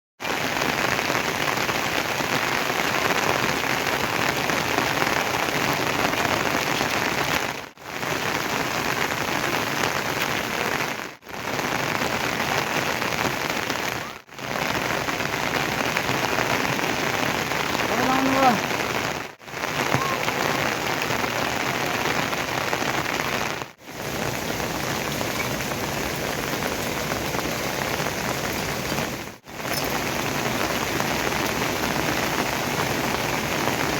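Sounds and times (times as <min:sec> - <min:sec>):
steady rain falling: 0:00.2 - 0:33.9.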